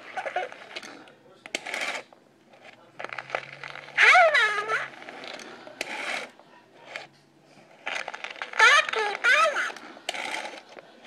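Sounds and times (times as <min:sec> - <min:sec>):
pull-string mechanism clicking and whirring: 0:00.0 - 0:07.1, 0:07.7 - 0:11.0
talking doll voice: 0:03.9 - 0:05.0, 0:08.5 - 0:09.8.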